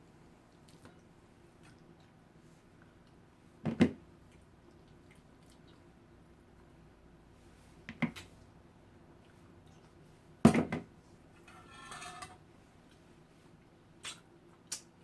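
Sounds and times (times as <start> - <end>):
utensil scraping across plate: 11.4 - 12.4
utensils clinking on a plate: 11.4 - 12.4.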